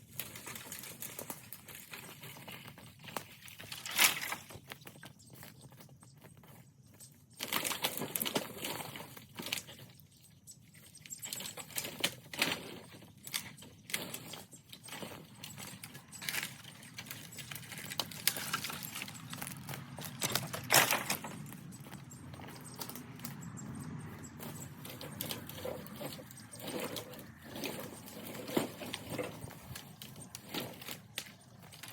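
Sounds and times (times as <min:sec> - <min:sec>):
footsteps in dry leaves: 0:14.9 - 0:31.9.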